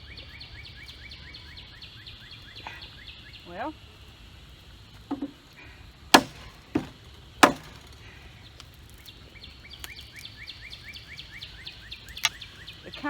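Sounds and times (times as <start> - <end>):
faint steady chirping: 0.0 - 13.0
dry wooden sticks cracking: 6.1 - 12.8.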